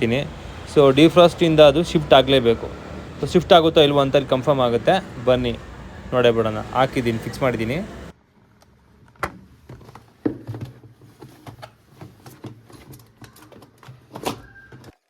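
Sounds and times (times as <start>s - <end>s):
parts clicking and knocking: 8.4s - 15.0s.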